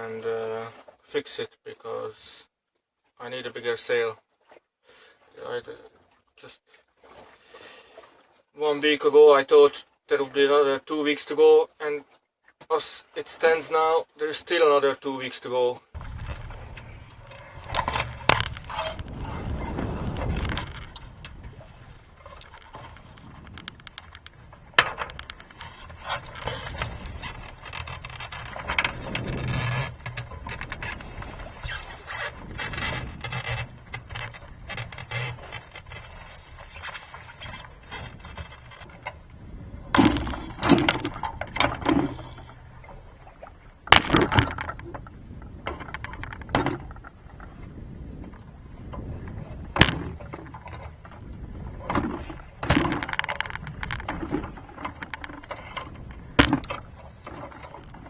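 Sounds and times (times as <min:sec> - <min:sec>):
gear knocking and clattering: 0:16.0 - 0:21.4, 0:22.2 - 0:47.5, 0:49.0 - 0:58.0.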